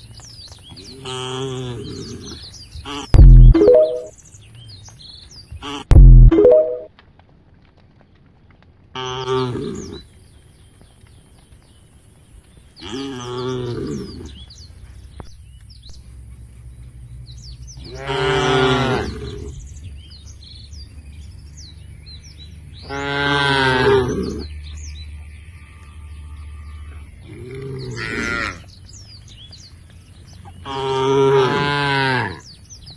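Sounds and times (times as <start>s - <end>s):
birds chirping faintly: 0.0s - 6.9s, 9.6s - 32.9s
cattle mooing: 17.9s - 19.5s, 22.9s - 24.4s, 26.0s - 28.7s, 30.6s - 32.5s.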